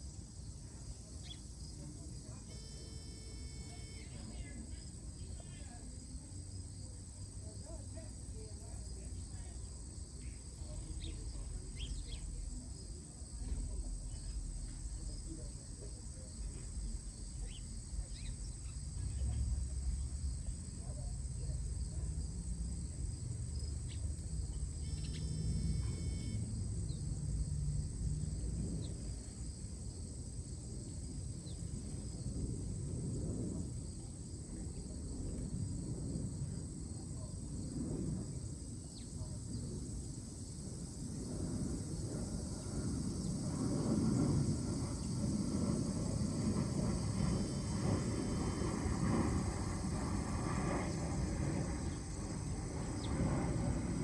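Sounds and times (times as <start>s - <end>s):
insect drone: 0.0s - 54.0s
wind on microphone: 10.8s - 54.0s
bird chirps: 24.8s - 25.4s.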